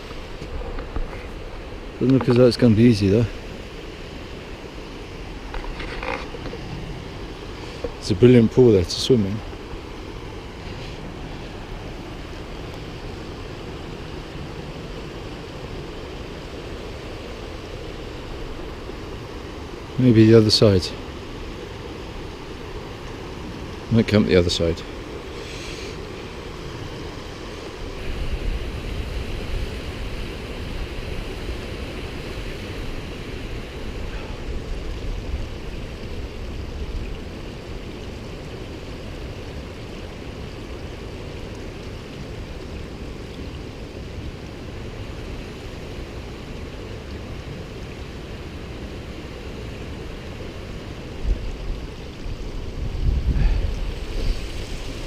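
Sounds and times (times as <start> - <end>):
waterfall and river rushing: 0.0 - 55.0
wind rumble on microphone: 26.6 - 55.0.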